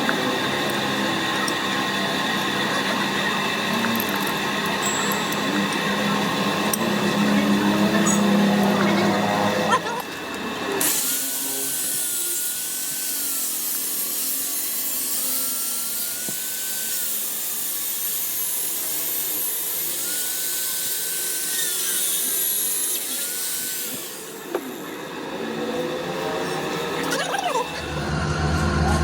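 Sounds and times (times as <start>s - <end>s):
power tool hissing and whining: 0.0s - 28.8s.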